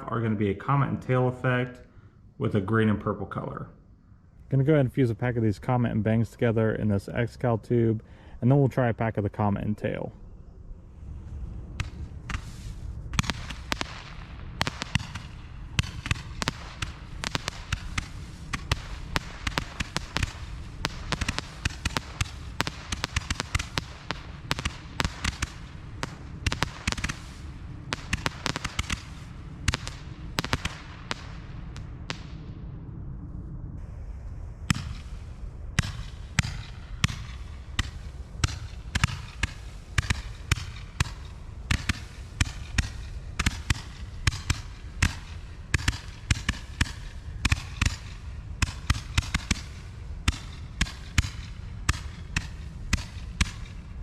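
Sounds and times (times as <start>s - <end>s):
roman candles firing shots and bangs: 11.8s - 32.6s, 34.6s - 54.0s.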